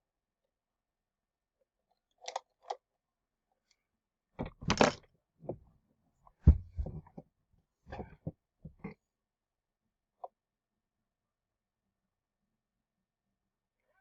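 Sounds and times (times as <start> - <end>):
small plastic clicks: 2.1 - 2.8
rustling and scraping: 6.3 - 7.2, 7.9 - 8.9
low thump: 6.4 - 7.1.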